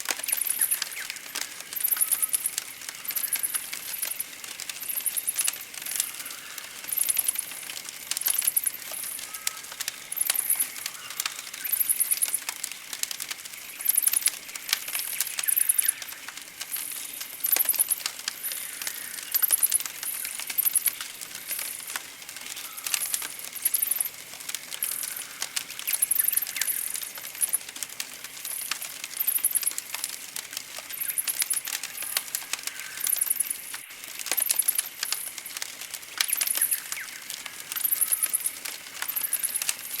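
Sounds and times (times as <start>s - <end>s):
campfire crackling and popping: 0.0s - 40.0s
soft whistled bird calls: 0.2s - 4.2s, 36.3s - 39.7s
birds singing trills: 0.2s - 7.4s, 8.2s - 12.9s, 13.5s - 21.8s, 22.4s - 27.6s, 36.3s - 40.0s.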